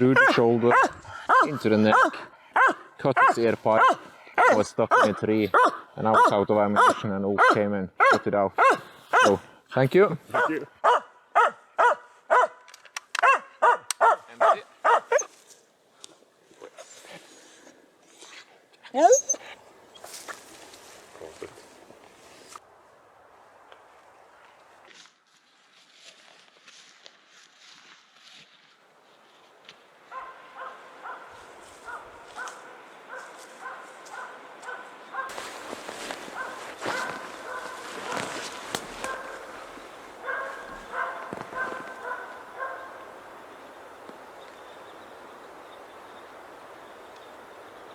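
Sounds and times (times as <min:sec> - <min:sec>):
dog barking: 0:00.2 - 0:09.4, 0:10.3 - 0:12.6, 0:13.2 - 0:15.3, 0:30.1 - 0:35.4, 0:36.4 - 0:38.2, 0:39.0 - 0:39.5, 0:40.2 - 0:43.0.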